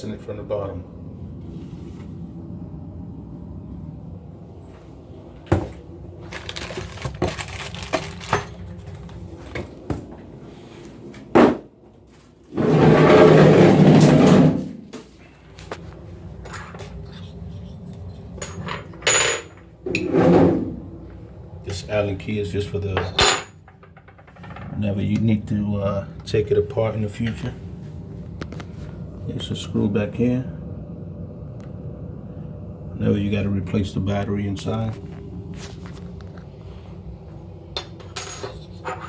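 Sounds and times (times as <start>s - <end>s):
loud scraping or rustling: 6.3s - 9.4s, 12.4s - 15.8s, 19.9s - 20.9s.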